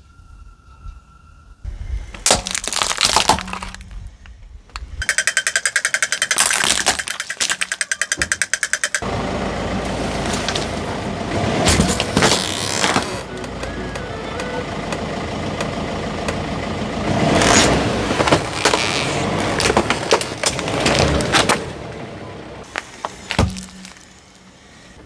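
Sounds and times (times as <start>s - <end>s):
steady crunching: 1.9s - 25.0s
toys cracking under car: 2.1s - 9.1s, 11.6s - 16.4s, 17.4s - 21.8s, 22.6s - 24.6s
fast even rattling: 4.7s - 9.2s.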